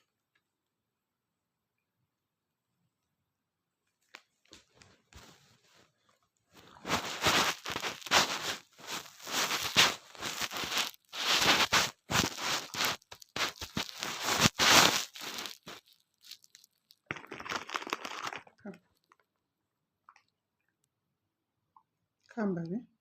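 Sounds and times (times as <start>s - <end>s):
crunchy snack being chewed: 6.6s - 19.3s.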